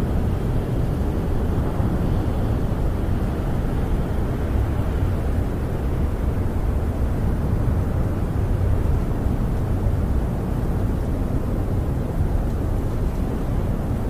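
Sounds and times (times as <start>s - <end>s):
wind howling outside: 0.0s - 14.0s.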